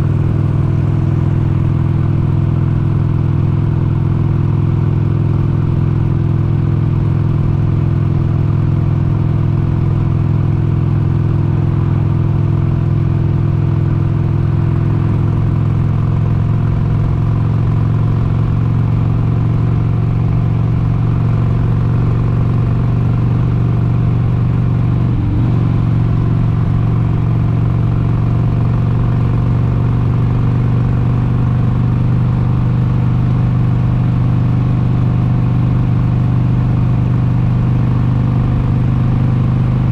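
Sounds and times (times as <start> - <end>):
motorcycle engine cruising: 10.0 - 39.9.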